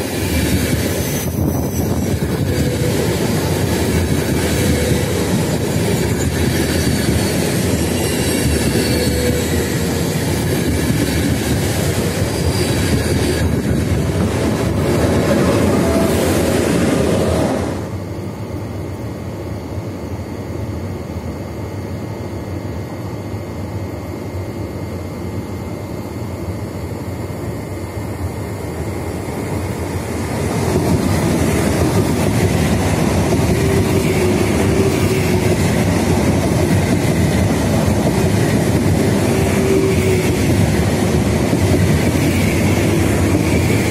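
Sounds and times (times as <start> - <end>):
electric train passing: 0.0 - 19.8, 27.1 - 43.9.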